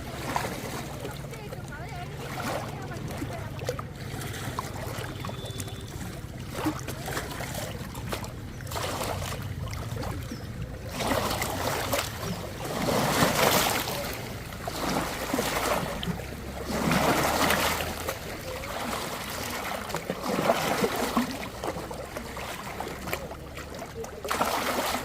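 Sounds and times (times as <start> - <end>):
water washing and splashing: 0.0 - 25.0.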